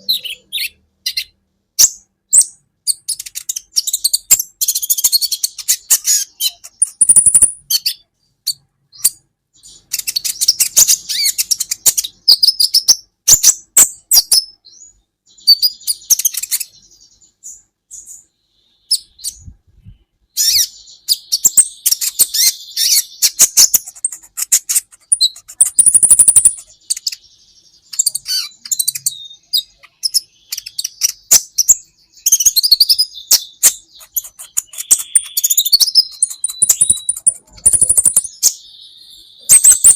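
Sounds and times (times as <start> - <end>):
sunbird chirping and trilling: 0.0 - 39.9.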